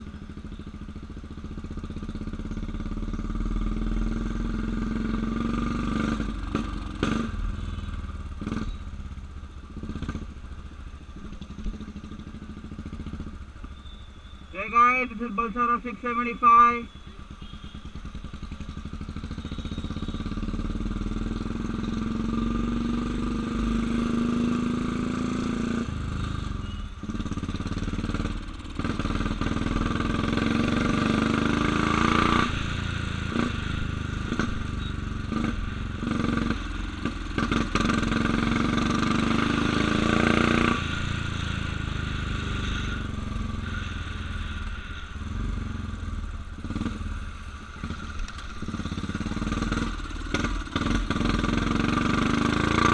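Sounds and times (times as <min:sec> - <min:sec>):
motorcycle engine accelerating: 0:00.0 - 0:14.0, 0:17.2 - 0:52.9.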